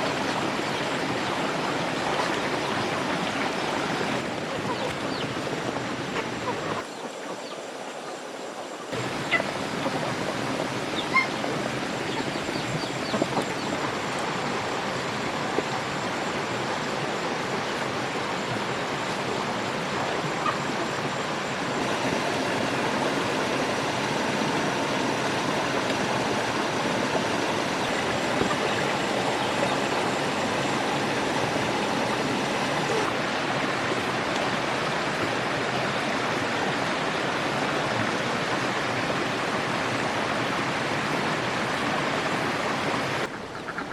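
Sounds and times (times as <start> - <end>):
steady rushing noise: 1.2 - 33.5.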